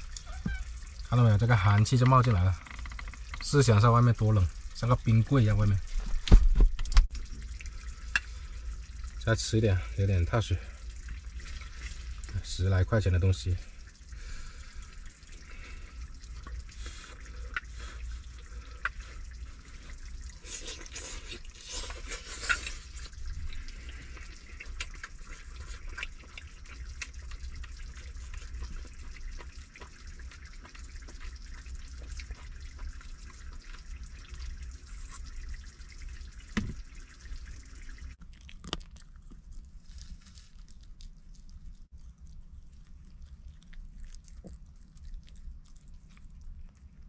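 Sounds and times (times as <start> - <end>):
food sizzling with crackling pops: 16.0 - 38.8.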